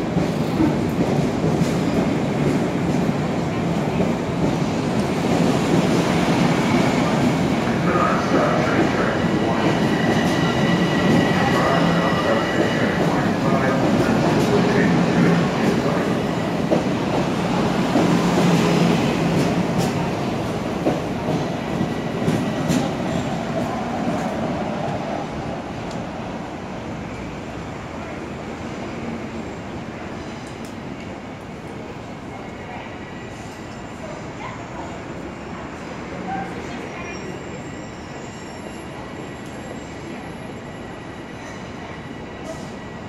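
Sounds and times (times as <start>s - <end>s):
train wheels rumbling: 0.0s - 26.2s.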